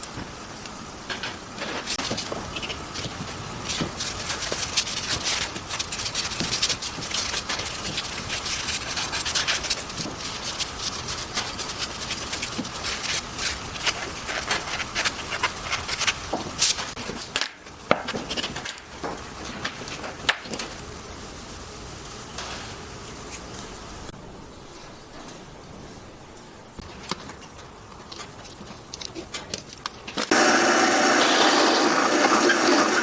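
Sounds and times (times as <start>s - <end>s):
wood rubbing and scraping: 1.1s - 21.0s.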